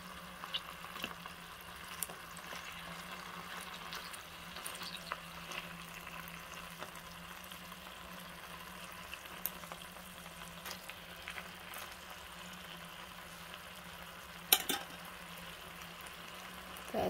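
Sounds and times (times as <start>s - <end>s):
sausages sizzling in oil: 0.0s - 17.0s
fork clicking against a pan: 14.5s - 14.9s.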